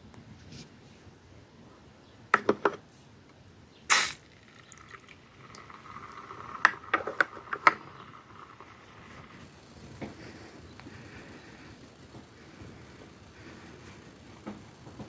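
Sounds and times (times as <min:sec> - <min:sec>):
handling clicks and knocks: 0:02.4 - 0:02.8
short loud hiss: 0:03.8 - 0:04.6
liquid trickling and dripping: 0:03.9 - 0:09.5.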